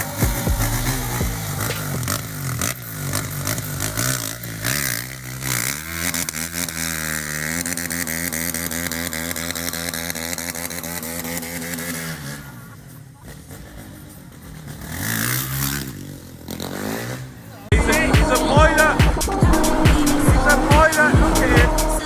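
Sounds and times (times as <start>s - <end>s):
car engine running: 0.0s - 6.8s, 17.7s - 22.0s.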